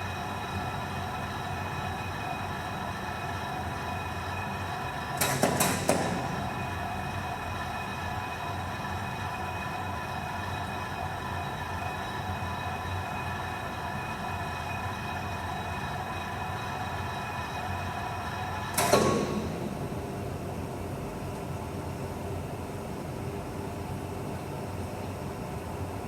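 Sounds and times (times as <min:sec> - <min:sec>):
industrial machinery hum: 0:00.0 - 0:26.0
loud metallic clang: 0:18.8 - 0:21.2.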